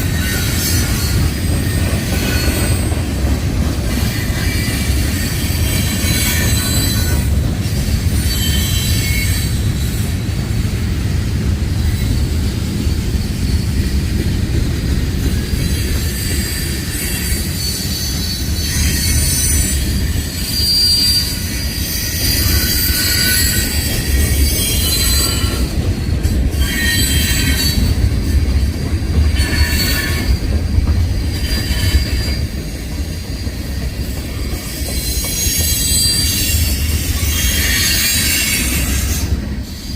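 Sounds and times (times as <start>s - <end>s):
train wheels rumbling on rail: 0.0s - 39.9s
high-pitched wheel squeal: 4.0s - 10.4s, 15.2s - 25.9s, 26.5s - 28.4s, 29.4s - 30.6s, 31.2s - 39.9s.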